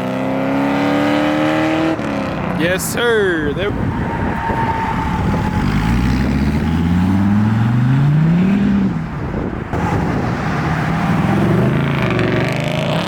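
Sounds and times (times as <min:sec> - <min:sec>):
car engine accelerating: 0:03.7 - 0:13.0.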